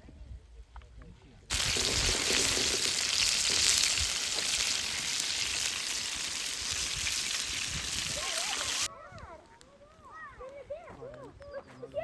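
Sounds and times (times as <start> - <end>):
food sizzling in oil: 1.5 - 8.9.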